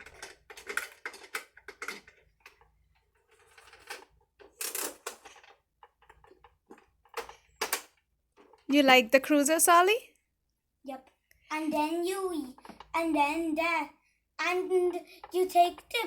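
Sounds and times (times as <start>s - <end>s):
plastic toy parts clicking: 0.0s - 8.6s.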